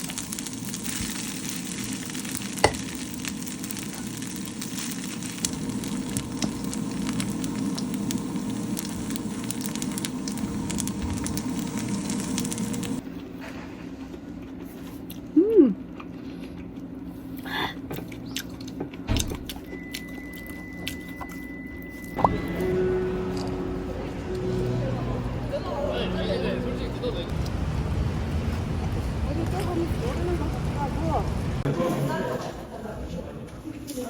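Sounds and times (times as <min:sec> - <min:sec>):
food sizzling in a frying pan: 0:00.0 - 0:13.0
thin steady high tone: 0:19.7 - 0:27.3.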